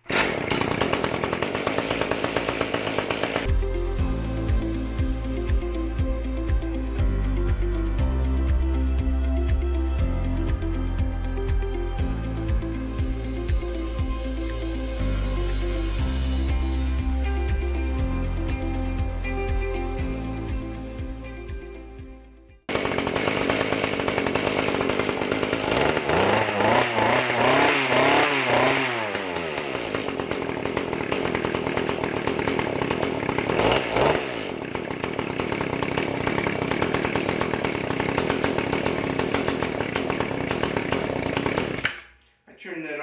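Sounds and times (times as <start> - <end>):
two-stroke tiller engine revving: 0.0 - 3.5, 22.7 - 42.0.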